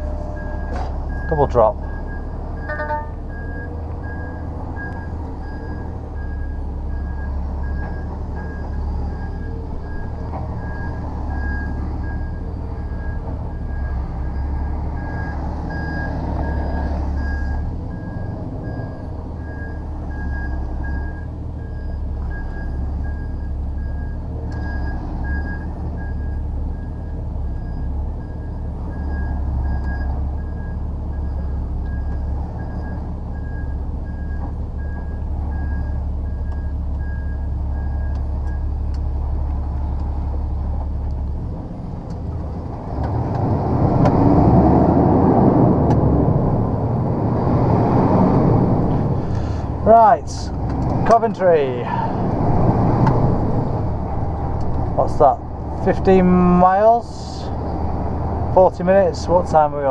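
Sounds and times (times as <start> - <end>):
reversing alarm beeping: 0.0 - 38.7
diesel engine rumble: 0.0 - 59.9.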